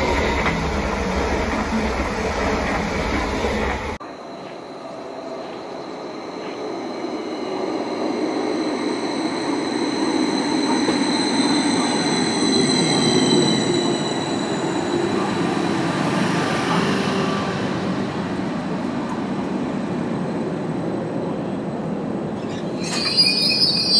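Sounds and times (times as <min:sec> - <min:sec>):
train running rumble: 0:00.0 - 0:04.0
train high whine: 0:00.0 - 0:21.6, 0:22.2 - 0:23.9.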